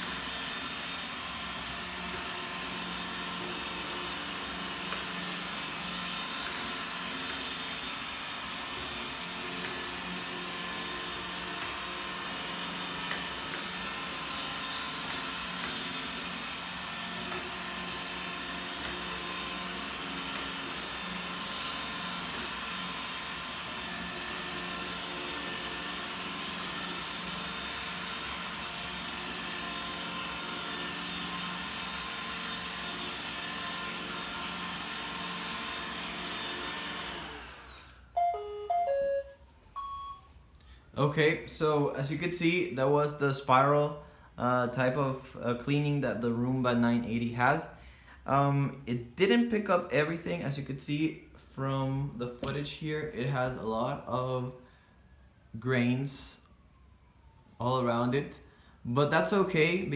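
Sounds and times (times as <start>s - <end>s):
robot vacuum whirring: 0.0s - 38.3s.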